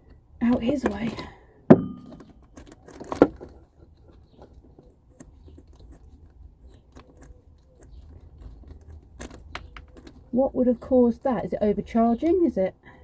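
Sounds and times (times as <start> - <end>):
tools and parts clicking: 0.1 - 10.4.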